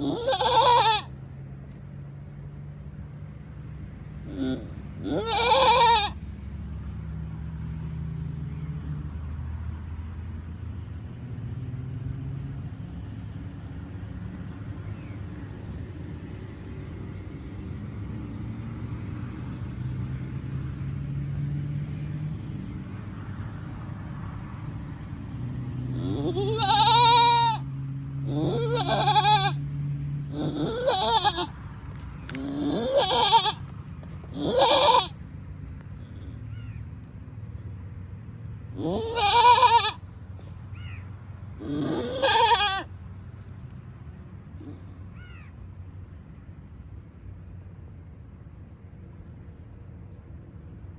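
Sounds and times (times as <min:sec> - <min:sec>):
goat bleating: 0:00.0 - 0:01.1, 0:04.3 - 0:06.2, 0:26.0 - 0:27.6, 0:28.3 - 0:29.6, 0:30.3 - 0:31.6, 0:32.2 - 0:35.2, 0:38.8 - 0:40.1, 0:41.5 - 0:42.9.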